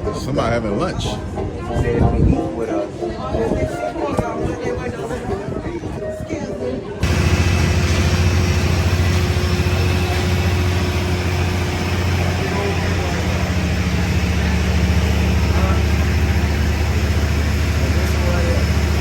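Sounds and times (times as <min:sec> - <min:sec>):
wind noise: 0:01.0 - 0:10.5
boat engine droning: 0:07.0 - 0:19.0
water noise: 0:07.0 - 0:19.0.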